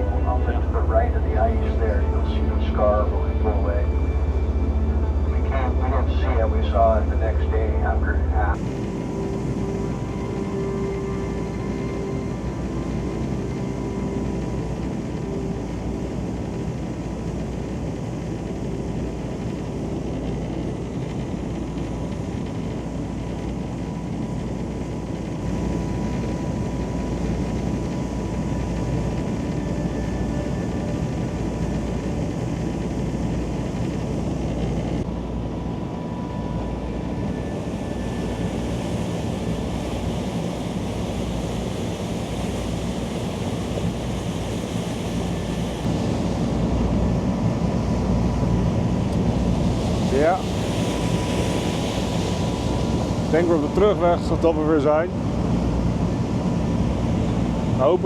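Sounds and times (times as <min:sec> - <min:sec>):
boat engines rumbling: 0:00.0 - 0:16.6
wind: 0:08.3 - 0:58.0.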